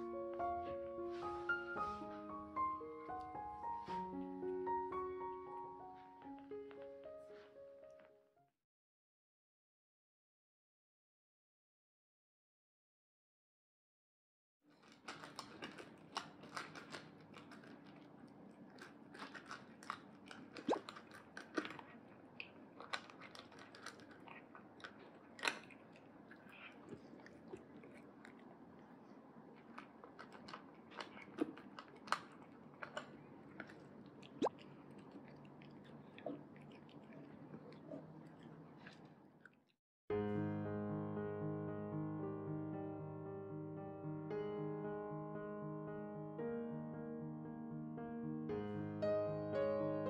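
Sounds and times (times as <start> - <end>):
cat crunching dry kibble: 14.7 - 39.2
kibble clicking on metal bowl: 14.8 - 18.1, 18.7 - 21.9.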